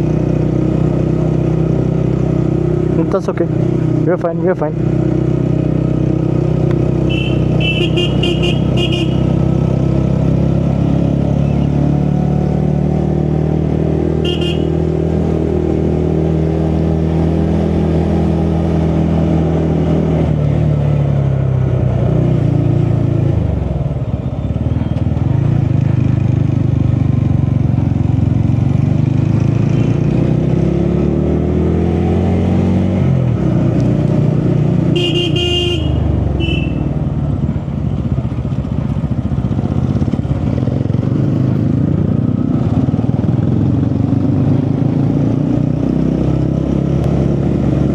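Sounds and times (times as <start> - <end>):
motorcycle engine running: 0.0 - 12.0, 14.0 - 16.4, 20.4 - 30.6, 33.2 - 45.9
short horn toots: 7.1 - 9.4, 14.2 - 14.8, 35.0 - 36.9.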